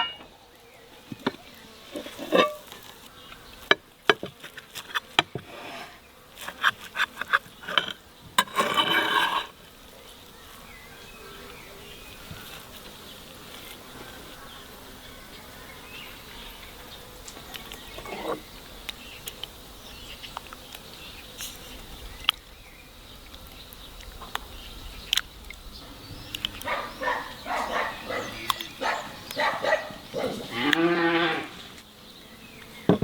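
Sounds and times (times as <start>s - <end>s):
insect buzzing: 0.0s - 33.0s.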